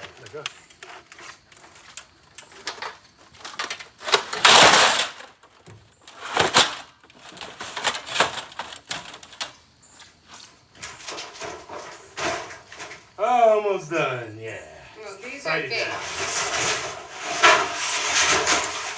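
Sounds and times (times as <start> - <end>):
boards knocking and clattering: 0.0 - 9.6, 10.8 - 13.2
board scraping: 0.7 - 3.0, 13.9 - 18.9.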